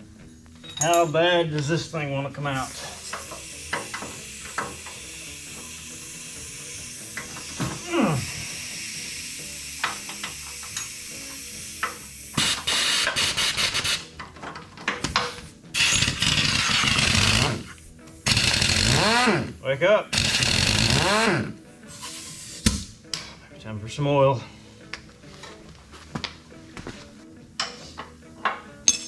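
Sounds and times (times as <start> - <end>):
compressed air hissing: 1.4 - 14.3, 15.1 - 23.4
pneumatic impact wrench hammering: 2.6 - 23.3.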